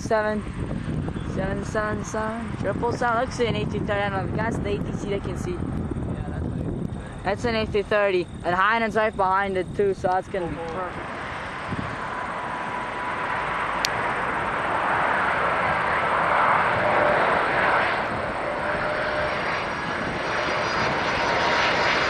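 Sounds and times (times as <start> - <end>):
jet airliner on approach: 0.0 - 22.0.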